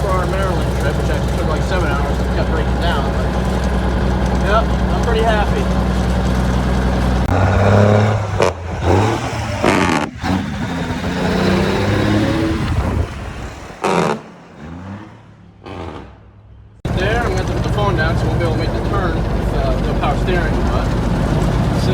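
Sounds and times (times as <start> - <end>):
engine clattering bursts: 0.0 - 14.3, 16.9 - 21.9
truck diesel engine revving: 0.0 - 16.2, 16.9 - 21.9.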